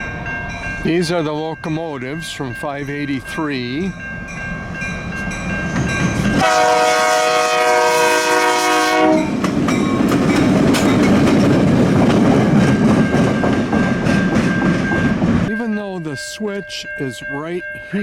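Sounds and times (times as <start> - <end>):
diesel engines rumbling: 0.0 - 6.9, 9.3 - 18.0
train horn blast: 6.4 - 9.4
wheels clacking over rail joints: 9.2 - 17.6.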